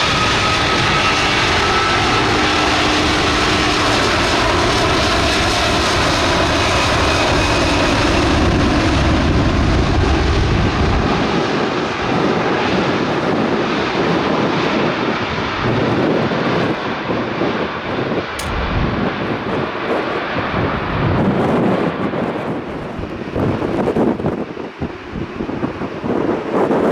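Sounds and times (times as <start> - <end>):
jet engines whining: 0.0 - 26.9
wind hitting microphone: 0.0 - 26.9
deep rumble: 18.0 - 24.2.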